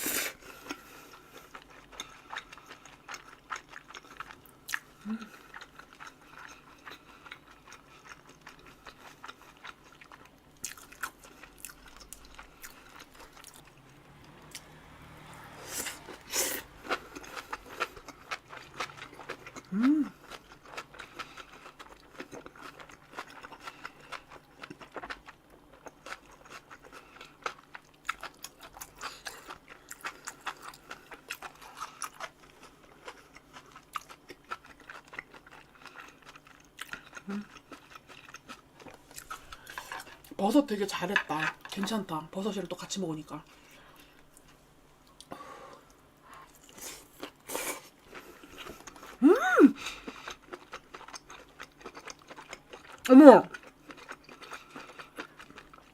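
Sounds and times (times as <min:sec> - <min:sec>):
wet chewing: 0:15.7 - 0:40.4, 0:43.9 - 0:55.9.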